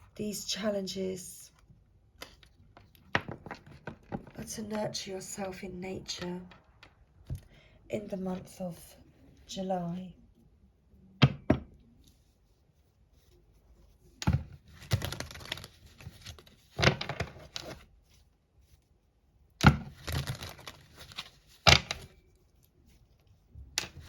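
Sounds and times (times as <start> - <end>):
cards being shuffled: 14.2 - 17.9, 19.7 - 22.2.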